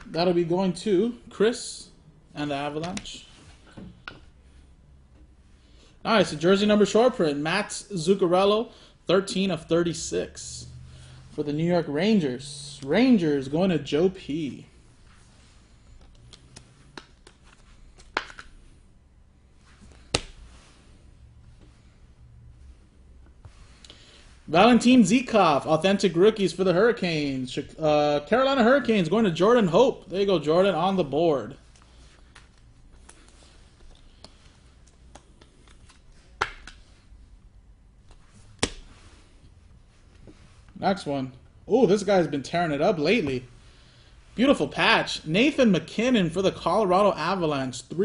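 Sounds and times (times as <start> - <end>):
cards rustling and clicking on table: 16.0 - 18.7, 19.7 - 20.6, 31.7 - 37.0
sharp card snaps: 18.0 - 18.5.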